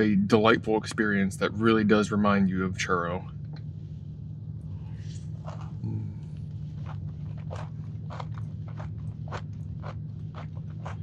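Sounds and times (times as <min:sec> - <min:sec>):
steady low hum: 0:00.0 - 0:11.0
cookie crunching while chewing: 0:05.3 - 0:11.0.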